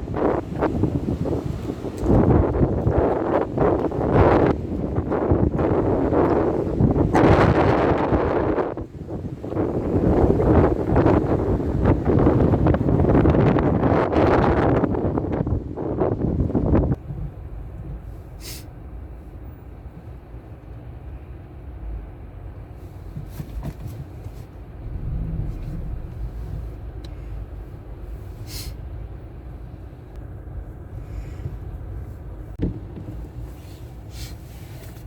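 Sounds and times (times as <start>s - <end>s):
wind buffeting microphone: 0.0s - 18.1s, 24.1s - 32.6s
low rumble: 24.6s - 31.2s.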